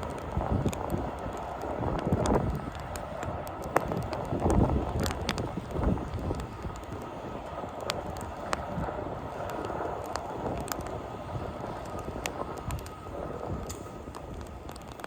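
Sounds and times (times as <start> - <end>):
blizzard wind rushing: 0.0 - 15.0
fire crackling and popping: 0.0 - 15.0.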